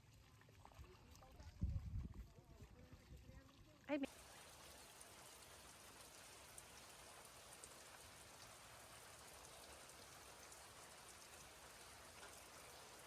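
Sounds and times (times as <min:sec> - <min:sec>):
faint rain falling: 0:04.0 - 0:13.0.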